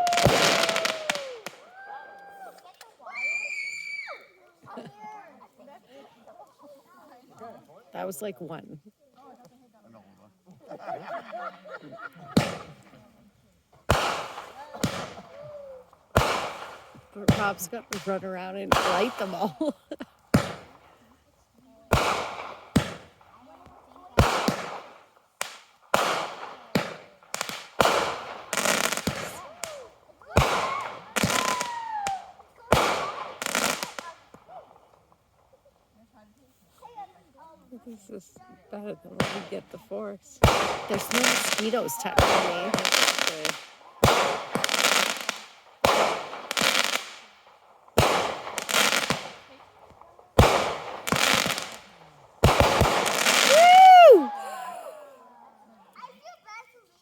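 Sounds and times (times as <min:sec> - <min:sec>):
fireworks bangs echoing: 0:00.0 - 0:01.6, 0:12.1 - 0:13.1, 0:13.8 - 0:21.1, 0:21.9 - 0:35.1, 0:39.1 - 0:54.3
fireworks whistling: 0:00.0 - 0:01.7, 0:12.3 - 0:12.9, 0:13.9 - 0:21.0, 0:24.2 - 0:34.4, 0:39.2 - 0:47.3, 0:47.9 - 0:49.6, 0:50.4 - 0:54.4
fireworks crackling: 0:00.0 - 0:09.8, 0:10.5 - 0:54.9.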